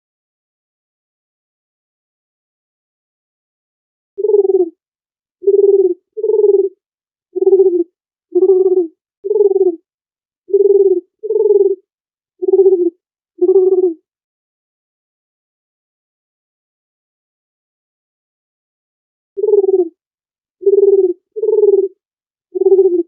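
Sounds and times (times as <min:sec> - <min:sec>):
dove cooing: 0:04.2 - 0:04.8, 0:05.4 - 0:06.8, 0:07.4 - 0:09.8, 0:10.5 - 0:11.8, 0:12.4 - 0:14.0, 0:19.4 - 0:20.0, 0:20.6 - 0:23.0.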